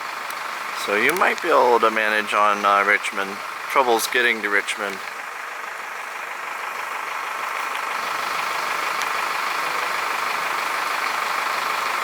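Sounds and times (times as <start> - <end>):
cars driving through water: 0.0 - 12.0.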